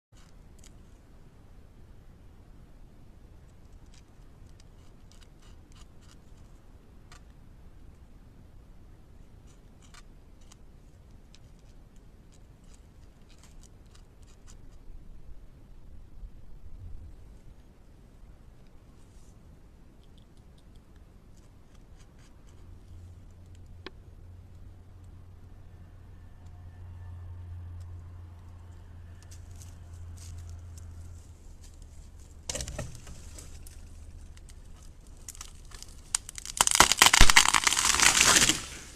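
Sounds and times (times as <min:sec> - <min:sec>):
beaver gnawing wood: 0:00.2 - 0:01.0, 0:03.3 - 0:08.0, 0:09.0 - 0:14.9, 0:29.2 - 0:38.9
crunching of wood: 0:29.3 - 0:38.9.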